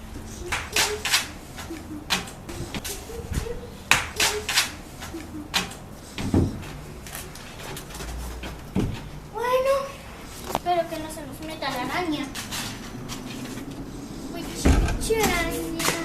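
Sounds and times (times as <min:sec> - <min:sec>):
sharp knocks and clatters: 0:03.9 - 0:09.2.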